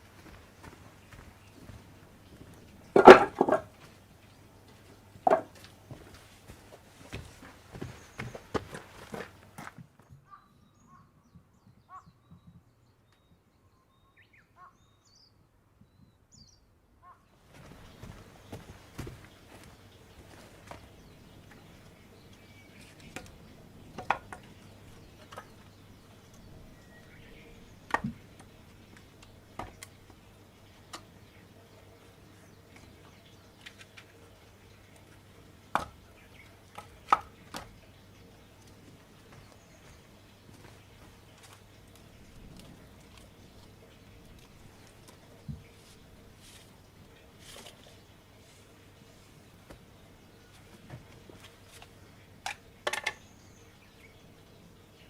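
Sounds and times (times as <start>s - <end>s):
wild birds chirping: 0.0s - 55.0s
firewood knocking: 2.9s - 3.8s, 5.2s - 6.1s, 22.8s - 30.2s, 35.7s - 36.1s, 36.7s - 37.8s
knocks: 3.0s - 3.7s
rustling: 40.6s - 49.4s.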